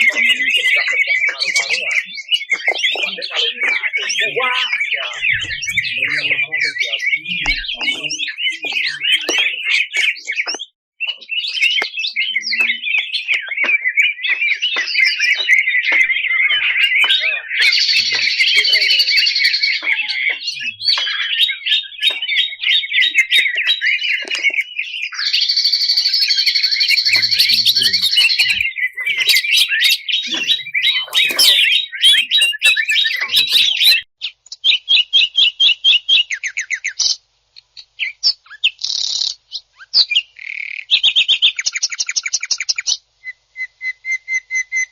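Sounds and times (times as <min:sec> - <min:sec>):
bird singing trills and chatter: 0:00.0 - 0:44.9.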